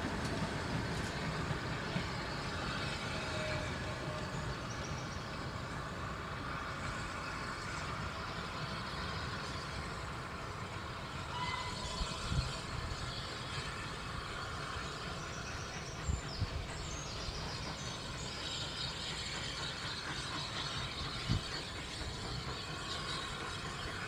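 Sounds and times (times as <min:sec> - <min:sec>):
distant train rumble: 0:00.0 - 0:24.0.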